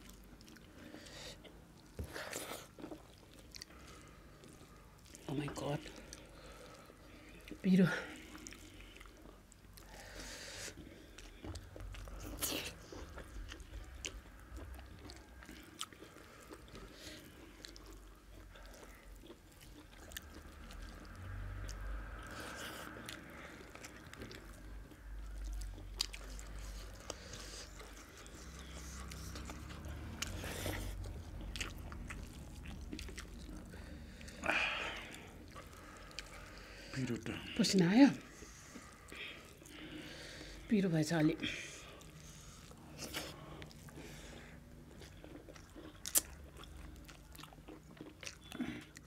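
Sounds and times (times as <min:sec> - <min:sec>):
chewing and eating: 0:00.0 - 0:49.0
mouth clicks and wet smacks: 0:44.9 - 0:49.0.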